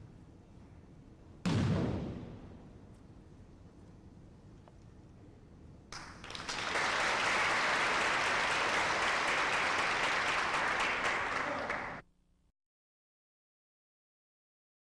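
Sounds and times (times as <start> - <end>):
group of people applauding: 5.9 - 12.0.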